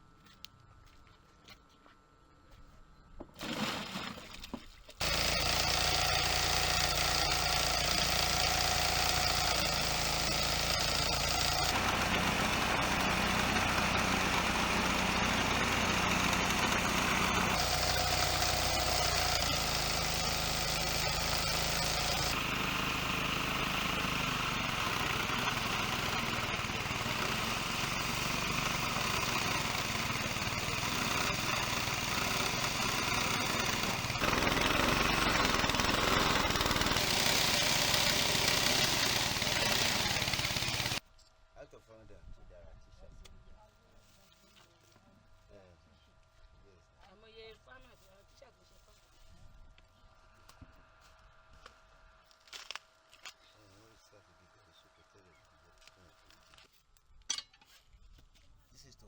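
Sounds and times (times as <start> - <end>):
small engine-driven machine running: 5.0 - 41.0.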